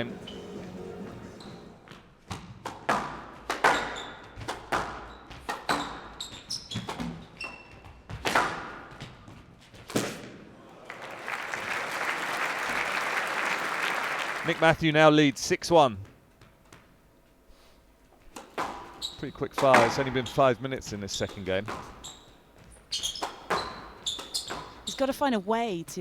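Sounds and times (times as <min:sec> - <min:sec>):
squash ball hits: 0:02.2 - 0:06.2, 0:06.8 - 0:07.3, 0:08.1 - 0:10.4, 0:18.3 - 0:19.0, 0:19.6 - 0:20.2, 0:21.2 - 0:22.0, 0:23.1 - 0:24.9
shoe squeaks: 0:03.6 - 0:04.4, 0:05.0 - 0:08.1, 0:18.8 - 0:25.1
audience applauding: 0:10.6 - 0:15.0.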